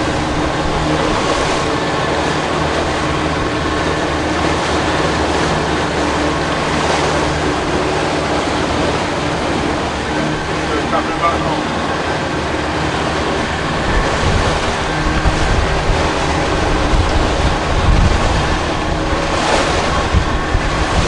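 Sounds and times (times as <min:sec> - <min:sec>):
boat engine running: 0:00.0 - 0:21.0
rushing water: 0:00.0 - 0:21.0
wind on microphone: 0:00.0 - 0:21.0.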